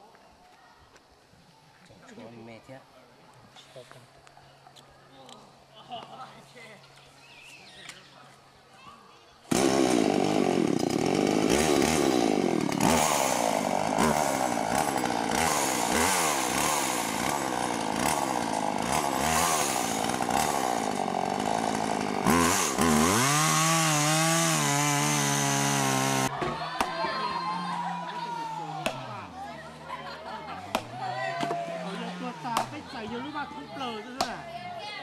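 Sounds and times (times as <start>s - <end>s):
chainsaw engine revving: 9.5s - 26.3s.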